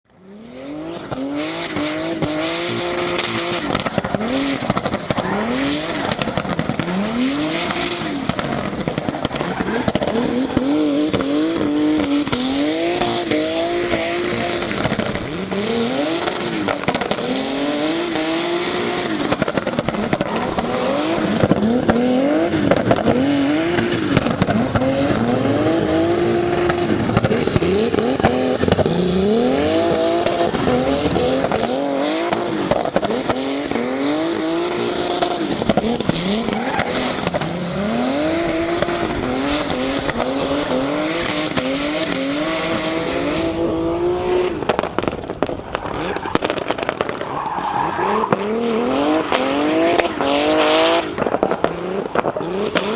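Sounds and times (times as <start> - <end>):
car engine revving: 0.1 - 52.9
tyre squeal: 36.0 - 37.6.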